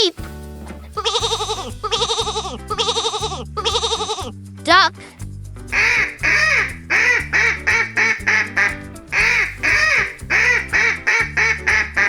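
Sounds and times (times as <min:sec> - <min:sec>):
cheerful background music: 0:00.0 - 0:12.0
duck quacking: 0:05.7 - 0:12.0.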